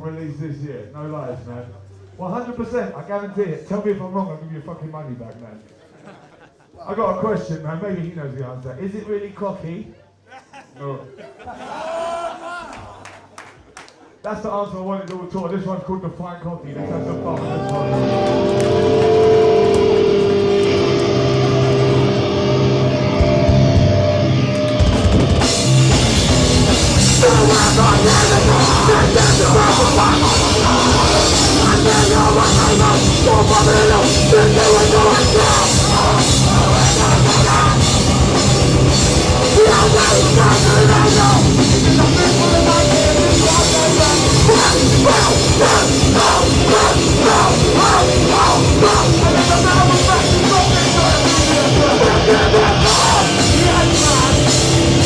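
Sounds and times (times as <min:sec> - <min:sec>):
hardcore band playing live: 0:16.7 - 0:55.0
lone electric guitar: 0:16.7 - 0:55.0.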